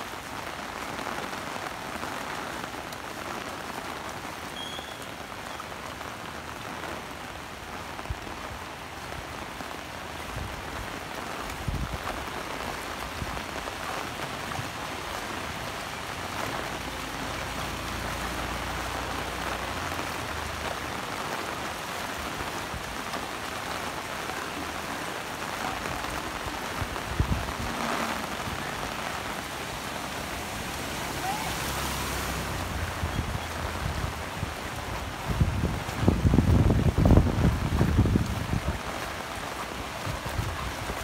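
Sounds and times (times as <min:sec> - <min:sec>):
heavy rain falling: 0:00.0 - 0:41.0
splashing through water: 0:09.4 - 0:41.0.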